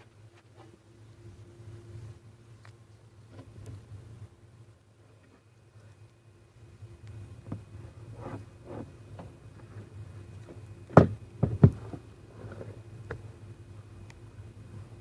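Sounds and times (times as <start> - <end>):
steady low hum: 0.0 - 15.0
soft wiping strokes on glass: 7.7 - 10.3.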